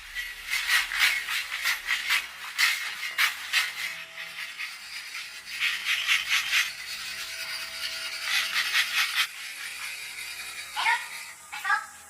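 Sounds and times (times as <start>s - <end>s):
hand tool scraping rough surface: 0.0s - 11.9s.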